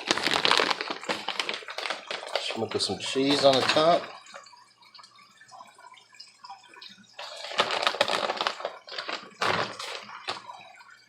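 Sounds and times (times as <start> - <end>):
packaging crinkling and rustling: 0.0 - 4.1, 7.2 - 10.5.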